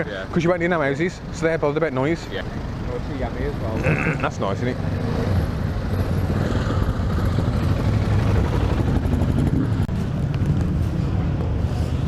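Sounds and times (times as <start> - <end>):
motorcycle engine rumbling: 2.4 - 12.0.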